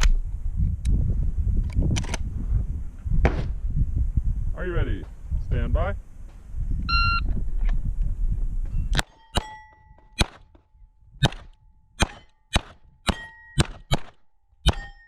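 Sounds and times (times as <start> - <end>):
steel plates ringing: 9.0 - 10.2, 12.1 - 13.6, 14.7 - 15.0
pistol shots: 10.2 - 10.4, 11.2 - 14.9.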